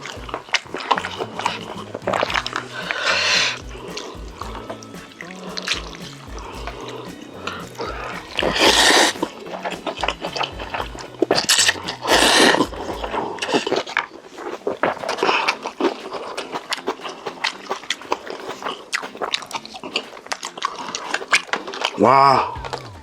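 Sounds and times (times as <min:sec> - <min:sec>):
background music with bass line: 0:00.0 - 0:13.8, 0:22.0 - 0:23.0
wet chewing and slurping: 0:00.0 - 0:23.0.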